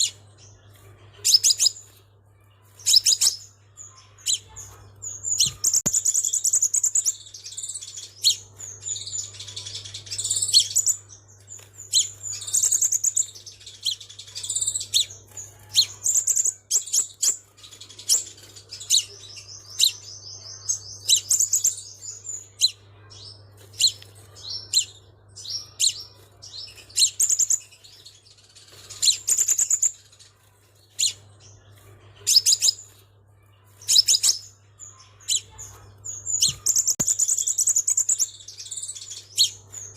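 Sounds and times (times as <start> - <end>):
bird chirping and trilling: 0.0 - 39.9.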